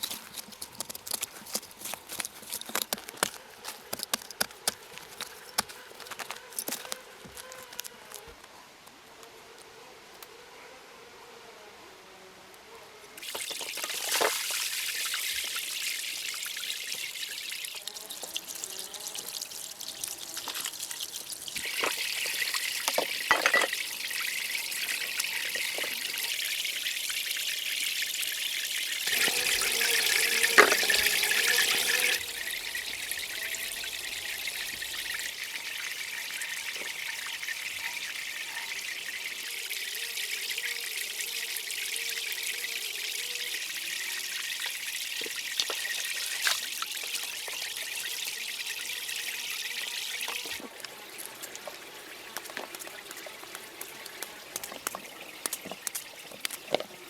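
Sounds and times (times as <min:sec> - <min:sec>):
water trickling: 0:00.0 - 0:08.2, 0:13.2 - 0:57.0.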